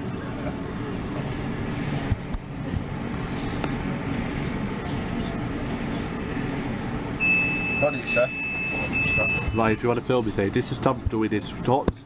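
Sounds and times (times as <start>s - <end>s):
train rumble inside carriage: 0.0s - 7.2s.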